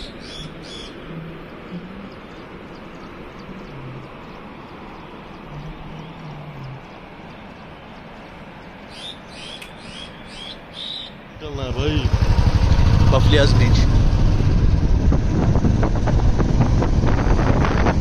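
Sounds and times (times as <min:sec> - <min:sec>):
high bird chirps: 0:00.0 - 0:01.0, 0:07.5 - 0:11.2
outdoor background hiss: 0:00.0 - 0:18.0.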